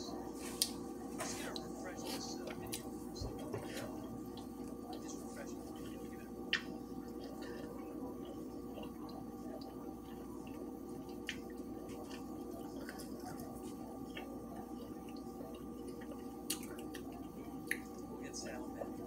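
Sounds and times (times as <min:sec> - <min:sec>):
steady hum with held tones: 0:00.0 - 0:19.0
wet chewing and mouth clicks: 0:03.8 - 0:18.1.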